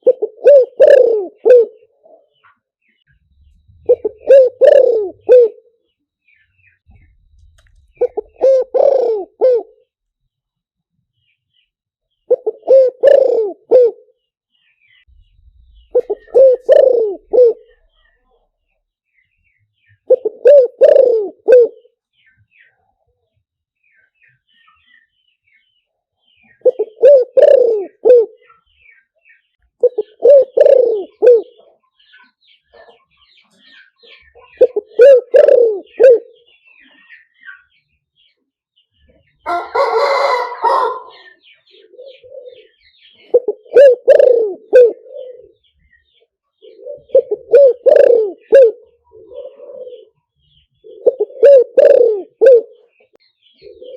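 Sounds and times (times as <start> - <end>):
dove cooing: 0.0 - 2.5, 3.4 - 5.8, 6.8 - 9.9, 12.3 - 14.2, 15.6 - 18.2, 20.0 - 21.9, 26.5 - 28.6, 29.8 - 32.1, 32.7 - 37.4, 39.5 - 53.9
small birds chirping: 0.0 - 53.9.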